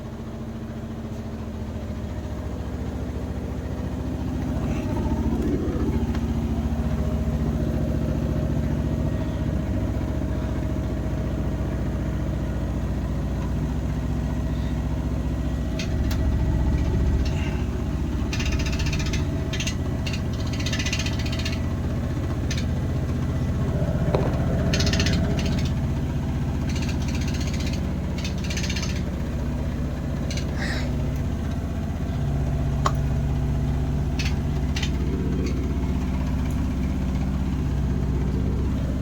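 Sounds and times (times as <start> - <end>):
washing machine spinning hum: 0.0 - 39.0
washing machine rattling: 15.2 - 38.6.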